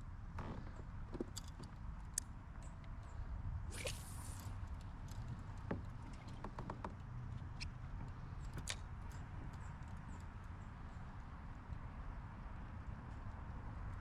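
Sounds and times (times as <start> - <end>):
fishing gear clicks and knocks: 1.1 - 2.7, 3.8 - 10.3.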